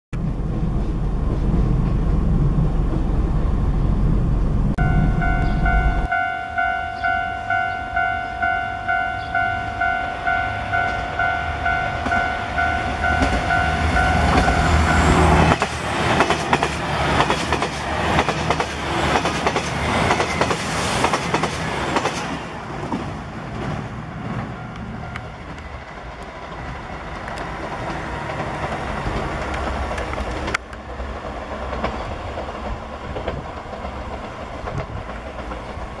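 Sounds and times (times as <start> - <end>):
level crossing bell ringing: 4.8 - 15.2
train wheels clattering: 12.0 - 36.0.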